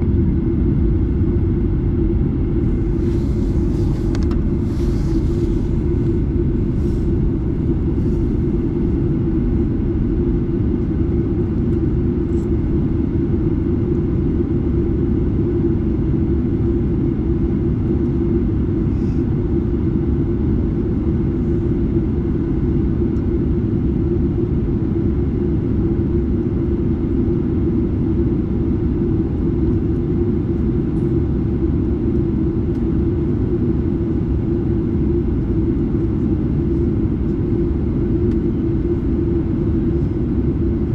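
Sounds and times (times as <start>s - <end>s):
airflow noise: 0.0s - 12.6s
jet engine drone: 0.0s - 40.9s.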